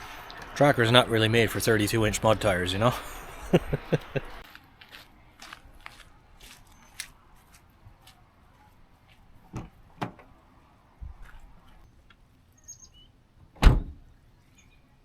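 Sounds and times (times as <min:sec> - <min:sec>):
faint bird chirps: 0:12.6 - 0:13.2, 0:14.3 - 0:15.0.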